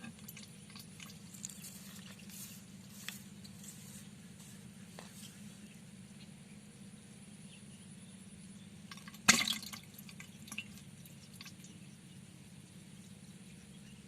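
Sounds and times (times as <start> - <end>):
water drips and splashes: 0.0 - 2.3, 8.9 - 11.8
steady low hum: 0.0 - 14.0
sharp splash in water: 9.3 - 10.6.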